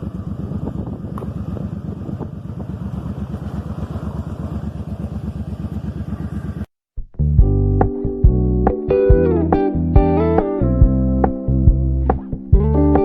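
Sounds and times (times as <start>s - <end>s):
motorcycle engine running: 0.0s - 6.7s, 7.4s - 13.0s
guitar music: 7.1s - 13.0s.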